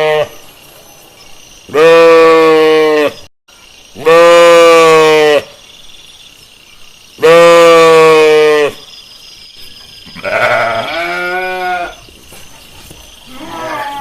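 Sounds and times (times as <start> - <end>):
sheep bleating: 10.2 - 12.0, 13.3 - 14.0.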